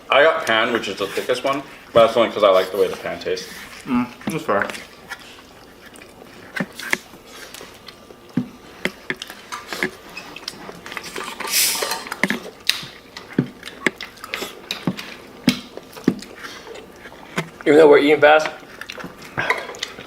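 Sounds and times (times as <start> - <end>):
people chewing and biting: 0.7 - 20.0
short rustling hiss: 11.4 - 12.0.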